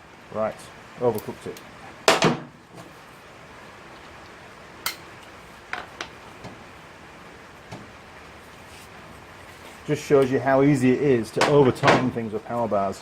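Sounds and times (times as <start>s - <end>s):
hand tools clinking on metal: 4.9s - 5.1s.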